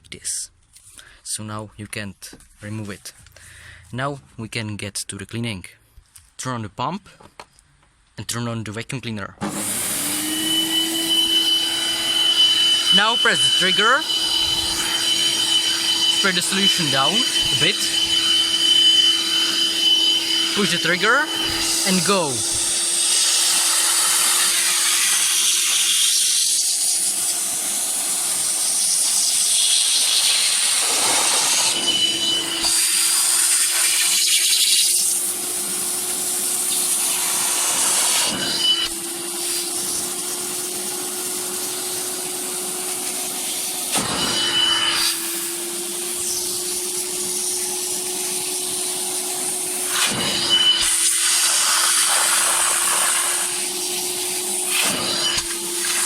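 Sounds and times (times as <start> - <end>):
wet vacuum cleaner whine and hiss: 9.4 - 56.0.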